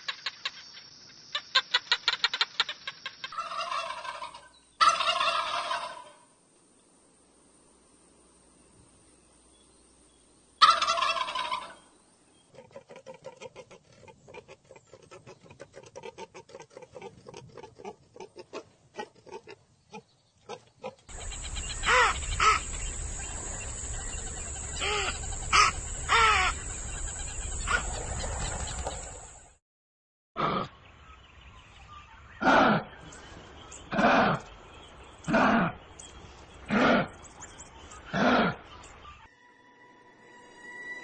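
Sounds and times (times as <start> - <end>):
short loud fowl calls: 10.6 - 11.8
fowl warbling call: 10.6 - 11.9, 20.5 - 29.4
rapid clucking: 12.6 - 19.6.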